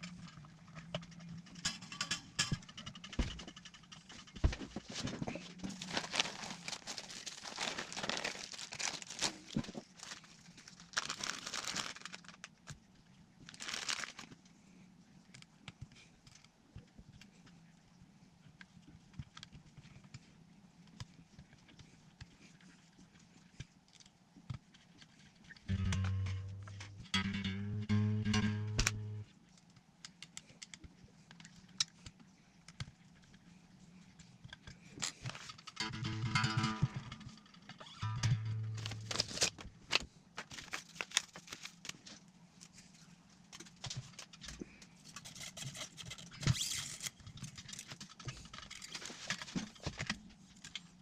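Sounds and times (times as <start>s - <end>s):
crinkling and rustling: 0.0s - 27.2s, 28.8s - 51.0s
electric guitar low note: 25.7s - 29.2s
guitar handling clicks and taps: 25.7s - 29.2s, 35.7s - 39.3s.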